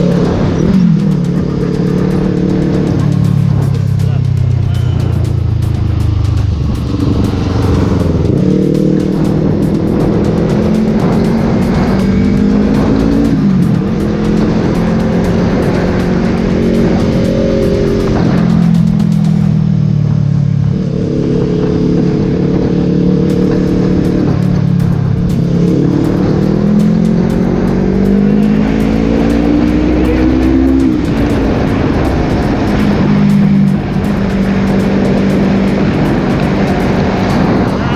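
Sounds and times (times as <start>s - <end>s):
motorcycle engine revving: 0.0s - 37.9s
music playing: 0.0s - 37.9s.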